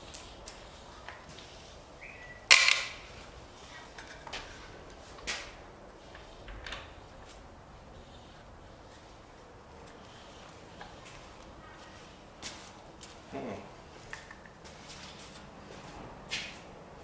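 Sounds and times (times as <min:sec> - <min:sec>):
tools clicking and knocking: 0:02.5 - 0:03.0.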